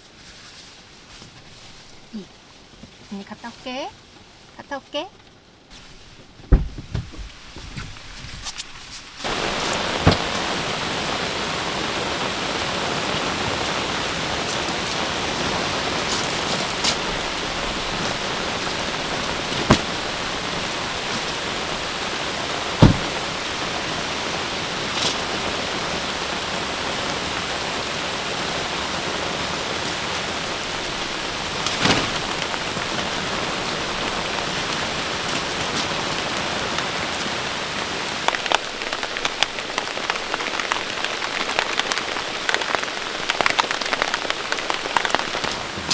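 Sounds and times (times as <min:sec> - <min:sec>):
heavy rain: 0:00.8 - 0:45.9
single drops knocking: 0:22.8 - 0:23.3.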